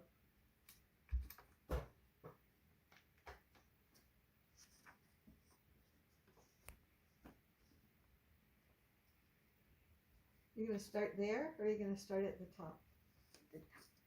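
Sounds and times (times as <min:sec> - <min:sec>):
paper rustling: 0:03.3 - 0:07.8.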